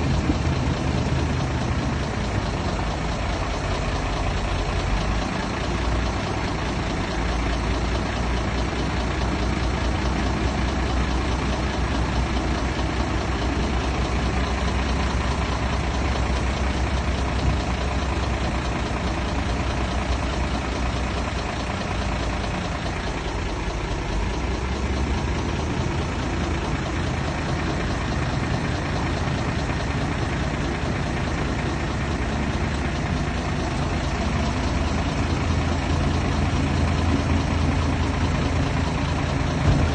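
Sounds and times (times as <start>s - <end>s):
heavy diesel machinery rumbling: 0.0s - 39.9s.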